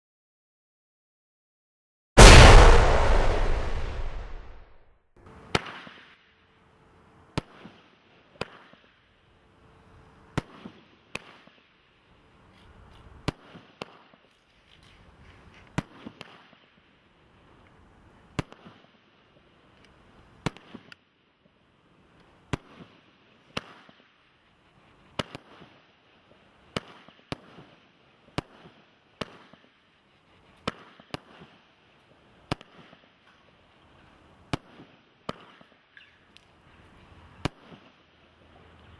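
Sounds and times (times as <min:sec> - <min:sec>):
firework bangs: 0:02.2 - 0:04.8.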